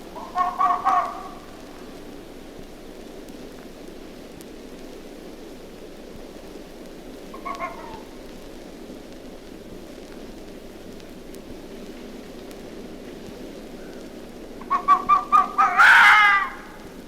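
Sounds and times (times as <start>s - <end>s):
background hiss: 0.0s - 17.0s
fox call: 0.1s - 2.0s, 7.3s - 8.1s, 14.6s - 17.0s.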